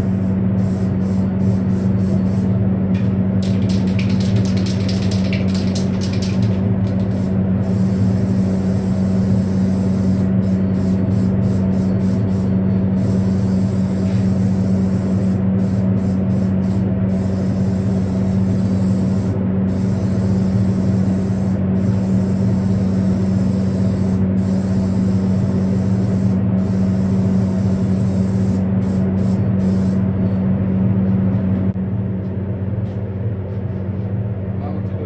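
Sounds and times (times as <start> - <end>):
machine hiss: 0.0 - 2.6, 3.4 - 30.0.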